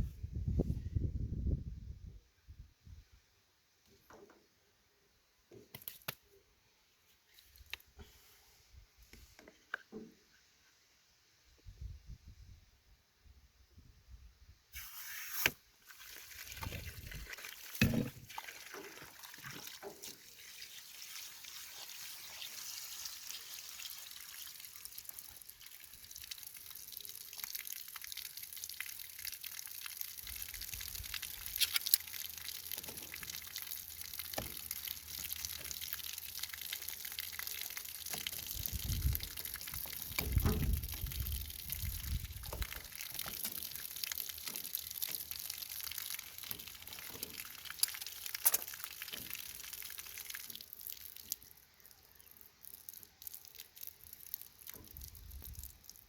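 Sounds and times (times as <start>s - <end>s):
water spraying from pipe: 14.7s - 56.0s.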